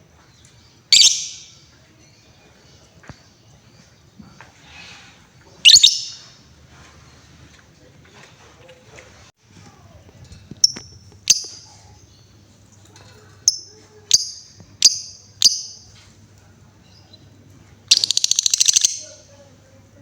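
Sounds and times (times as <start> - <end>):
lovebird chirping: 0.9 - 2.2, 5.6 - 6.4, 10.6 - 12.4, 13.4 - 16.0, 16.8 - 19.3.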